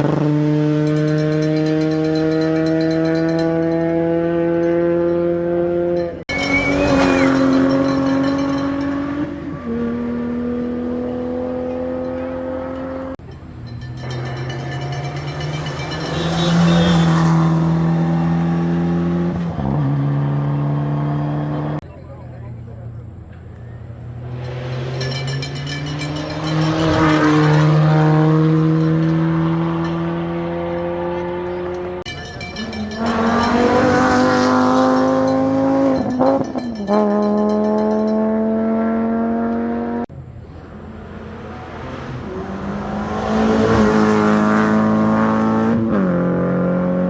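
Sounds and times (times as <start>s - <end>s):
rally car engine revving high: 0.0s - 13.3s, 14.0s - 21.8s, 24.0s - 47.0s.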